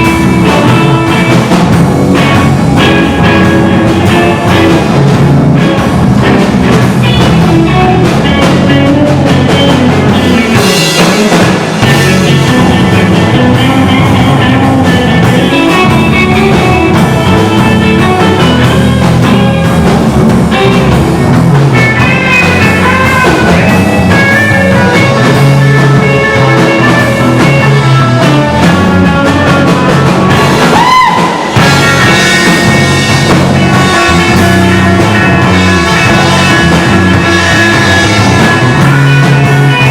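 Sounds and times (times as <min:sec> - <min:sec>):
electric guitar: 0:00.0 - 0:39.9
rock band playing: 0:00.0 - 0:39.9
bending guitar note: 0:11.8 - 0:39.9.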